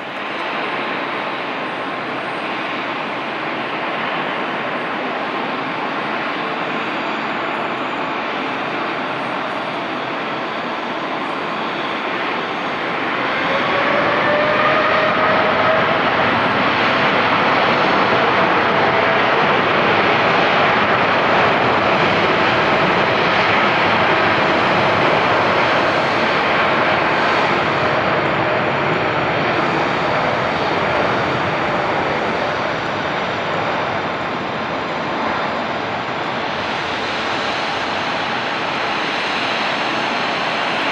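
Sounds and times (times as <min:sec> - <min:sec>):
jet airliner roar: 0:00.0 - 0:40.9.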